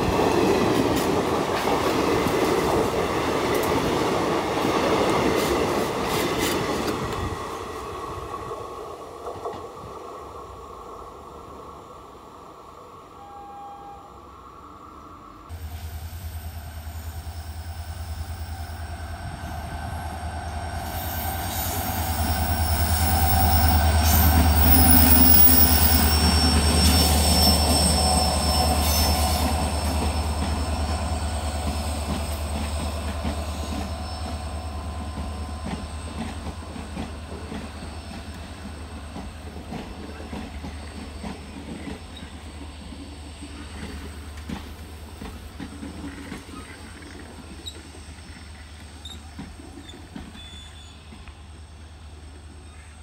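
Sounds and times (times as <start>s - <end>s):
train rolling rumble: 0.0s - 13.0s, 15.4s - 53.0s
high-pitched wheel squeal: 20.9s - 31.5s.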